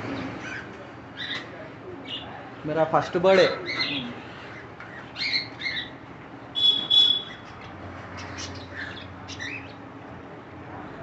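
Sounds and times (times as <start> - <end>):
bird whistle-like call: 6.6 - 7.4
bird chirps: 6.6 - 7.5.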